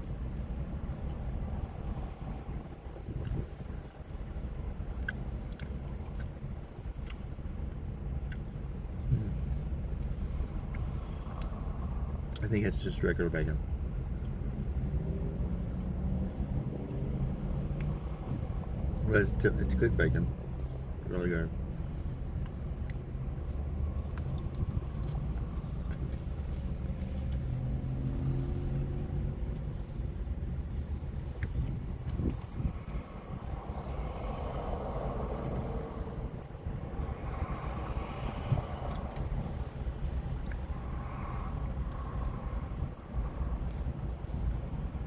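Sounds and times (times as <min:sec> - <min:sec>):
person chewing: 0:03.1 - 0:12.4, 0:22.3 - 0:42.8, 0:43.4 - 0:44.9
low rumble: 0:13.5 - 0:45.0.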